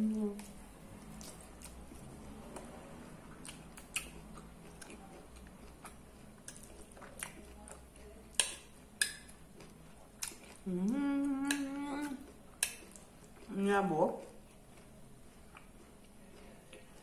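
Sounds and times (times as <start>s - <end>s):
close-up chewing: 0.0s - 17.0s
person humming mmm: 10.6s - 12.3s.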